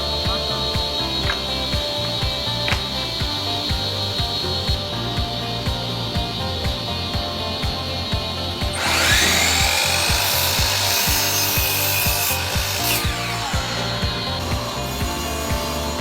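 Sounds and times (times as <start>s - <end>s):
background music with steady beat: 0.0s - 16.0s
power tool grinding: 7.4s - 16.0s.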